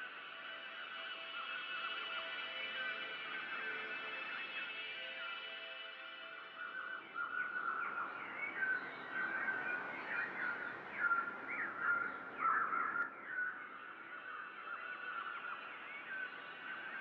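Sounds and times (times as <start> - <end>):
small birds chirping: 6.6 - 17.0.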